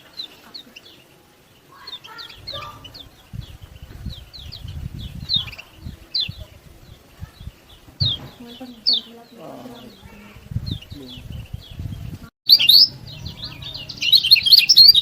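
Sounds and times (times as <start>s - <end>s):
bird chirping: 0.0s - 15.0s
low rumbling: 2.3s - 12.3s, 12.9s - 14.5s.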